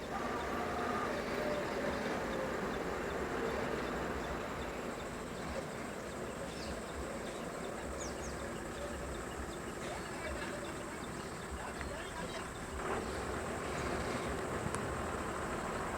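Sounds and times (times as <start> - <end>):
insects chirping: 0.0 - 15.9
motor vehicle running: 12.6 - 15.9.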